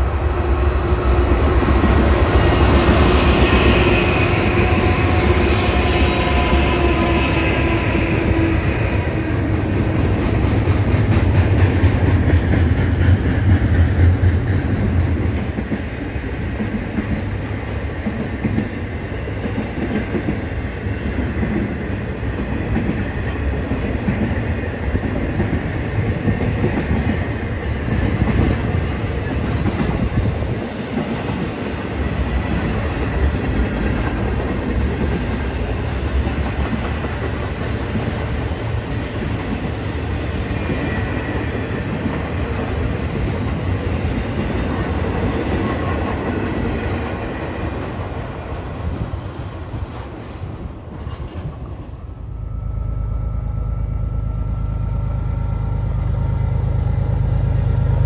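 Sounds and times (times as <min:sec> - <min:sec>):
freight cars rumbling on rails: 0:00.0 - 0:52.3
diesel locomotives droning: 0:00.0 - 0:58.0.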